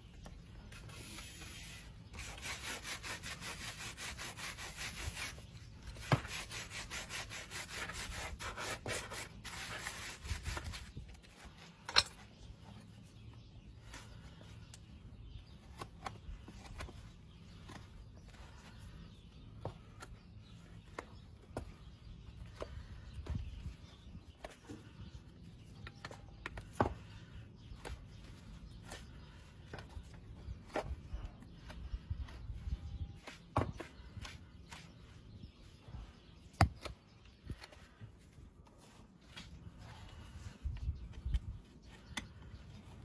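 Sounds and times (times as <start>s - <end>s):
tools scraping hoof: 0.6s - 12.4s.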